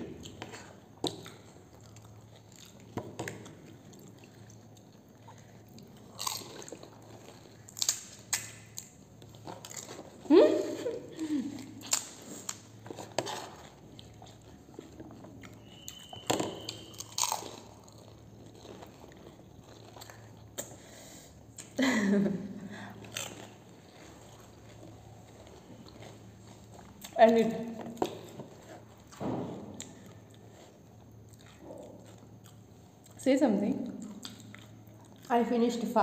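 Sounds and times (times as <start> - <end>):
wet chewing: 0.2 - 10.2, 11.5 - 20.9, 23.0 - 33.2, 33.8 - 35.3
crunching crisp shells: 0.5 - 10.2, 11.6 - 21.0.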